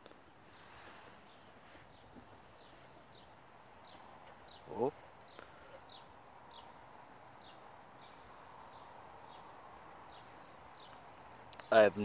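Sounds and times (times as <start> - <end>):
small bird chirping: 0.4 - 12.0.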